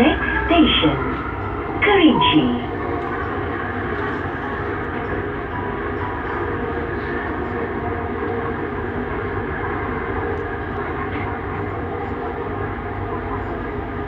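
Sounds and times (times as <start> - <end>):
train rolling noise inside car: 0.0 - 14.0.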